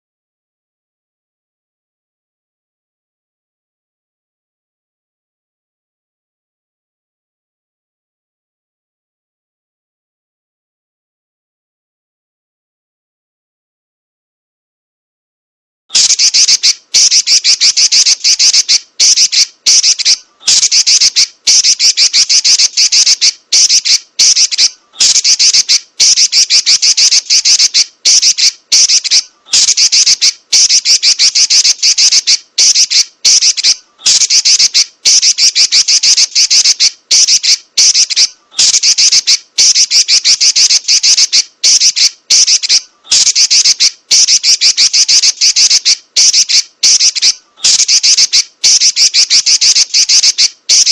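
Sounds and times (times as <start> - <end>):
bird chattering shrilly: 15.9 - 50.9.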